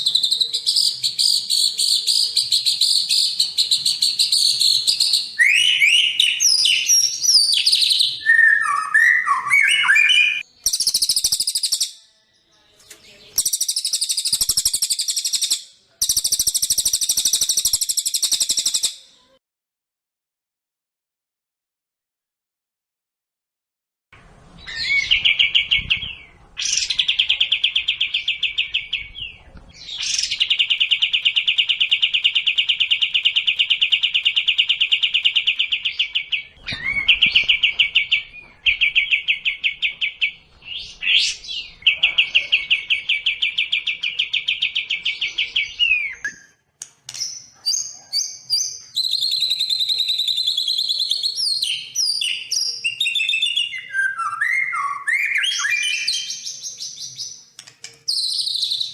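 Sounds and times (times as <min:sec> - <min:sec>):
songbird whistled notes: 0:00.0 - 0:11.9.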